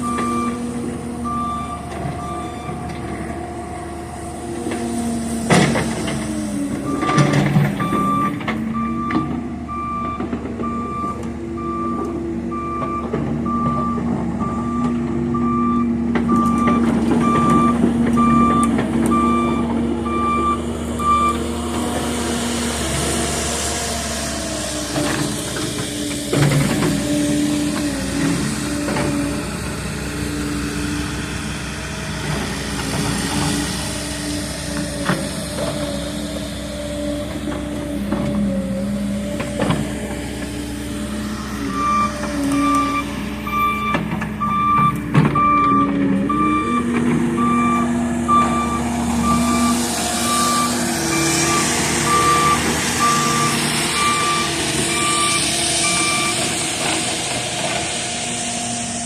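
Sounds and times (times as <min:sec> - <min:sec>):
excavator diesel engines running: 0:00.0 - 0:59.0
travel alarm beeping: 0:01.2 - 0:02.8, 0:06.9 - 0:21.4, 0:41.8 - 0:56.5
hiss: 0:55.4 - 0:59.0.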